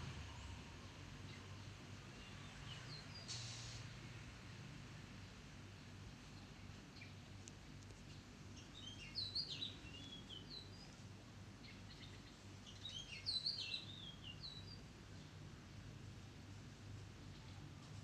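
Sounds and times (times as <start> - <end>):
low background hum: 4.0 - 18.0
bird singing whistled notes: 8.6 - 10.9, 11.7 - 14.8.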